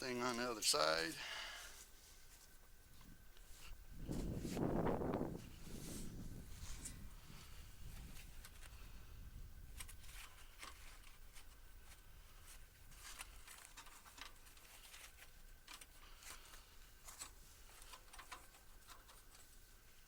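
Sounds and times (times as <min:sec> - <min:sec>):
light clicks taps and rustles: 0:09.8 - 0:19.6.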